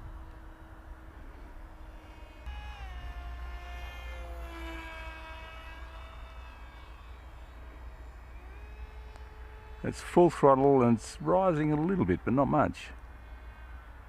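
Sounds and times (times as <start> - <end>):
electric motor and propeller whining: 0.0 - 14.0.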